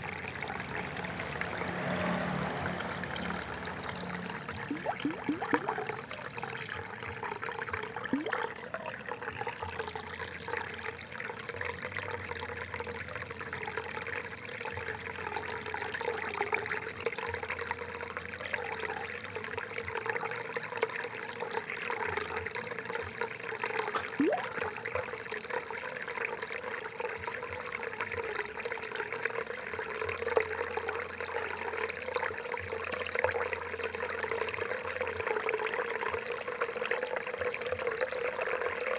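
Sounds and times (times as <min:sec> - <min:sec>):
water trickling and gurgling: 0:00.0 - 0:38.9
rising bubble blips: 0:03.2 - 0:06.2, 0:08.0 - 0:08.7, 0:23.9 - 0:24.7.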